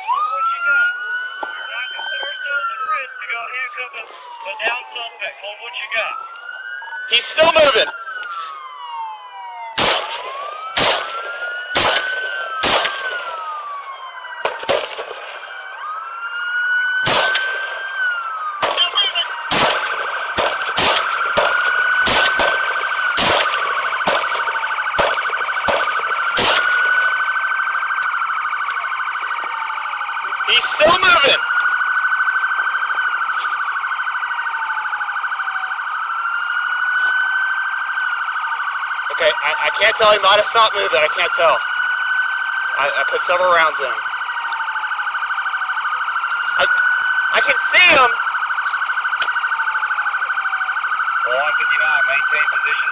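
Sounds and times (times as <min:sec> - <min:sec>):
police sirens wailing: 0:00.0 - 0:52.9
sharp cracks: 0:09.7 - 0:13.4, 0:14.4 - 0:15.5, 0:17.0 - 0:17.9, 0:18.6 - 0:27.2.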